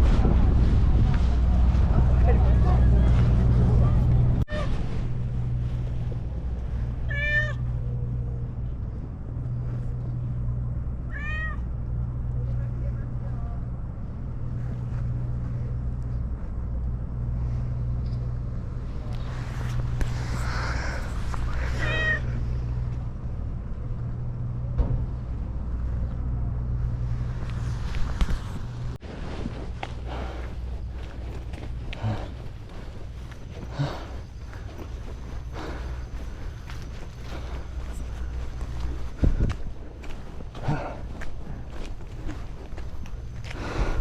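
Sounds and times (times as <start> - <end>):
boat engine drone: 0.0 - 44.0
cat meowing: 7.1 - 7.6, 11.1 - 11.6, 21.7 - 22.4.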